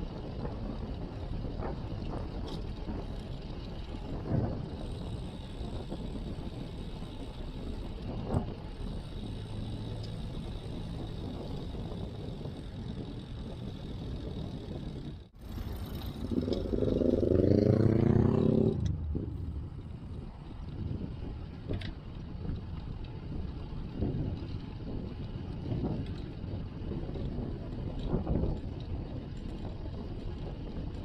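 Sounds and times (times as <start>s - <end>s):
wind and road noise: 0.0s - 31.0s
vehicle engine passing: 15.4s - 20.3s.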